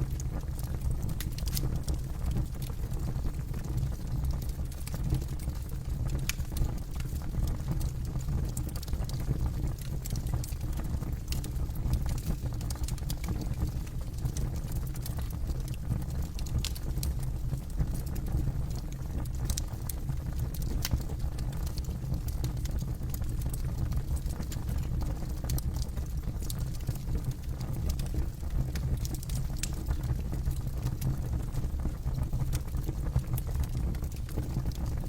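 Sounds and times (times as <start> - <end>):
campfire rumble: 0.0 - 35.0
burning wood crackling and popping: 0.1 - 35.0.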